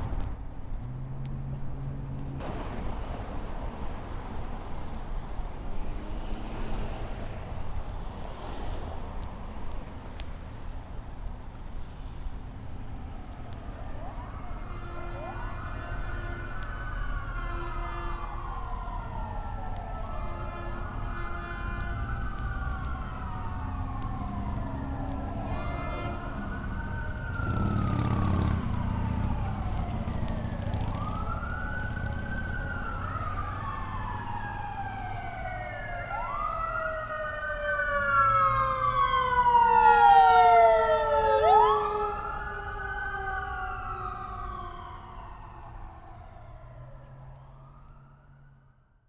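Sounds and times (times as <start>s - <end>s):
city street traffic rumble: 0.0s - 48.9s
emergency vehicle siren wailing: 11.6s - 49.0s.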